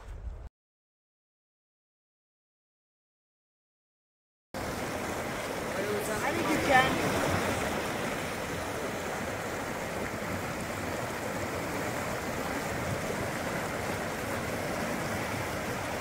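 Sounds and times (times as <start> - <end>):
creek rushing over rocks: 4.6 - 16.0.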